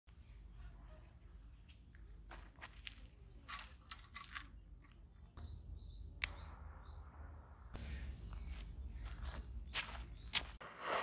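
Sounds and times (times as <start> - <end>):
small birds chirping: 0.1 - 10.6
low outdoor hum: 0.1 - 10.9
sharp click: 6.1 - 6.6.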